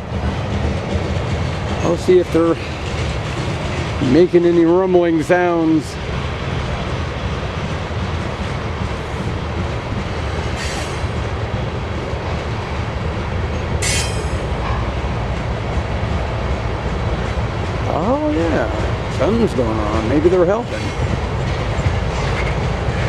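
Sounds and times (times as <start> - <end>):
diesel locomotives rumbling: 0.0 - 23.0
train wheel and rail noise: 0.0 - 23.0
high wheel squeals: 10.4 - 11.2.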